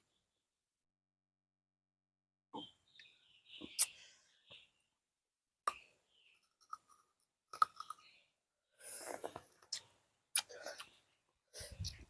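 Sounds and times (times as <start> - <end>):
fruit being bitten and chewed: 8.9 - 10.9.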